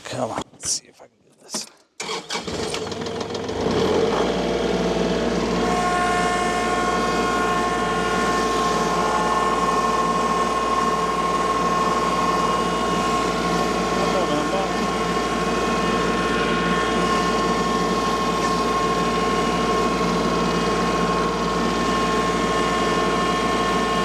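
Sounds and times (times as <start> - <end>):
tractor engine revving: 2.0 - 24.0
steady whine: 5.2 - 24.0.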